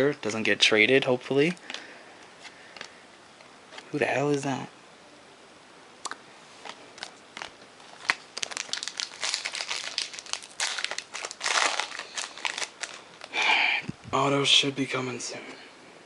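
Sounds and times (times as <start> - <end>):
foil wrapper tearing and crinkling: 7.0 - 13.4.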